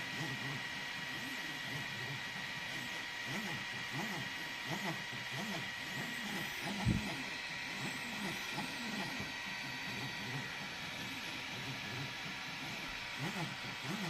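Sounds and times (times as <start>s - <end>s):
stepper motors whining: 0.0s - 14.0s.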